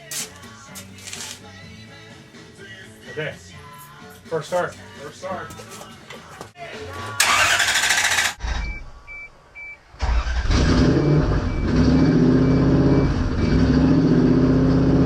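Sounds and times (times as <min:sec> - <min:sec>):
car engine starting and idling: 0:07.1 - 0:15.0
short electronic beeps: 0:10.9 - 0:13.6.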